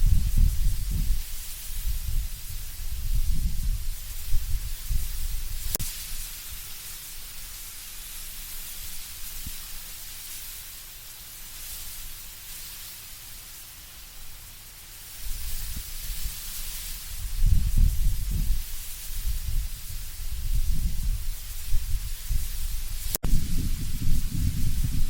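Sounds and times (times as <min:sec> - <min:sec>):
low wind gusts rumbling: 0:00.0 - 0:05.8, 0:17.1 - 0:25.0
leaves rustling in wind: 0:00.0 - 0:25.0.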